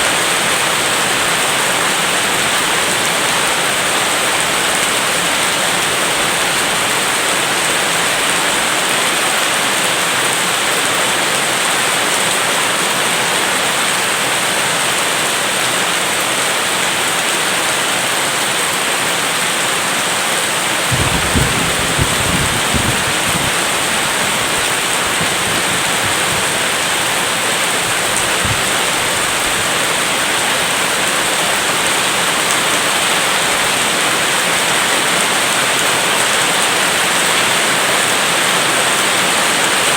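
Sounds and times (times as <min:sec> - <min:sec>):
heavy rain: 0:00.0 - 0:39.9
low rumble: 0:20.9 - 0:27.2.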